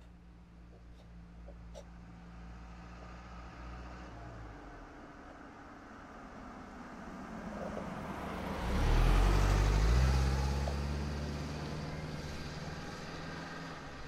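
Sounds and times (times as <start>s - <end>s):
vehicle passing by: 2.2s - 4.9s, 6.2s - 14.0s.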